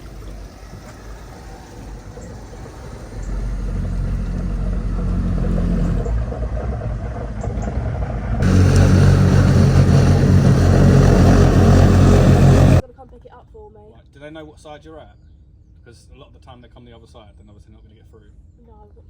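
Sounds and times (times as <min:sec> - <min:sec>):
vehicle engine rumbling: 0:00.0 - 0:12.8
loud rush of noise: 0:08.3 - 0:12.8.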